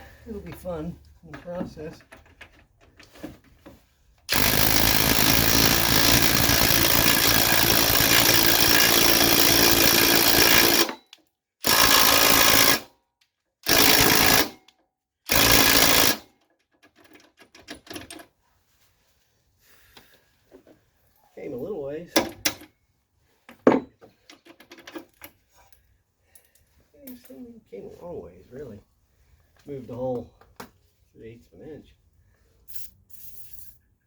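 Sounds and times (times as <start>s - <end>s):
impact wrench hammering: 4.3s - 11.0s, 11.6s - 12.9s, 13.7s - 14.6s, 15.3s - 16.2s.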